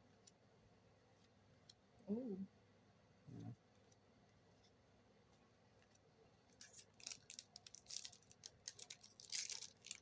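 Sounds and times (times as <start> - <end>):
cards and packs rustling: 6.6 - 10.0.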